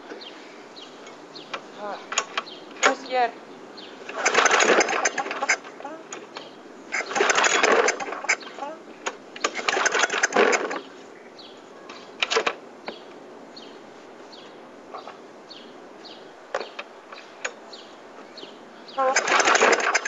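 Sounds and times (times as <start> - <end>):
lawn mower engine cranking: 1.0 - 3.1, 4.0 - 11.0, 12.1 - 12.6, 16.5 - 17.6, 19.0 - 20.0.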